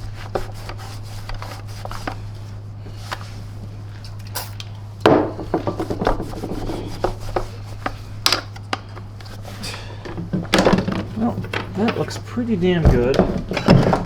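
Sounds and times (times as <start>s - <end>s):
steady low hum: 0.0s - 14.0s
rag rubbing plastic: 5.5s - 8.1s.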